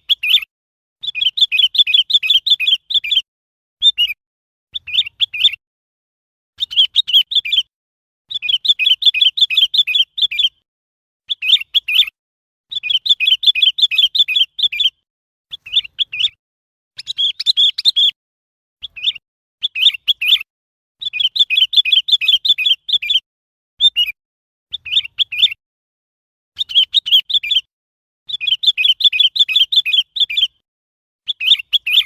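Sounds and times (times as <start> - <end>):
bird chirping: 0.0 - 5.6, 6.6 - 7.7, 8.3 - 10.6, 11.3 - 16.4, 17.0 - 18.2, 18.8 - 23.2, 23.8 - 25.6, 26.6 - 27.7, 28.3 - 30.6, 31.3 - 32.0.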